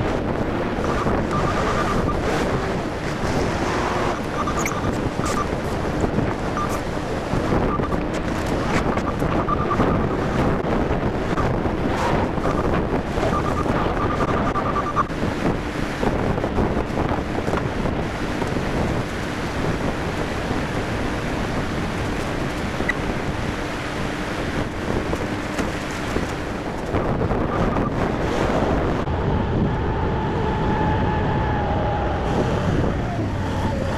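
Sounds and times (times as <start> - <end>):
forklift engine running: 0.0 - 16.0
wind noise on microphone: 0.0 - 33.9.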